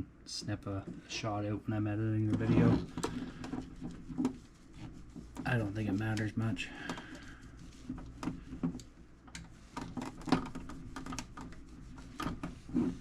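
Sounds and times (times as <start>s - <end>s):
cloth buffing metal box: 9.6s - 13.0s.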